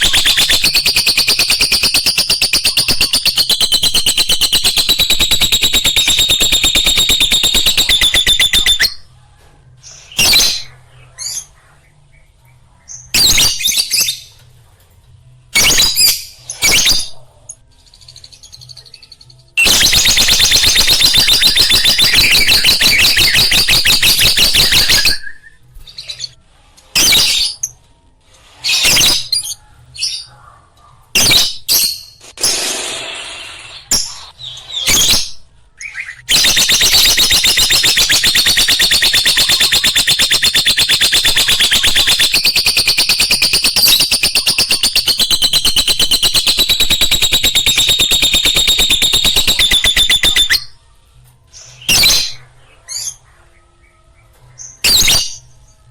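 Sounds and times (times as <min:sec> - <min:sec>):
lovebirds chattering: 0:00.0 - 0:09.1, 0:36.2 - 0:50.7.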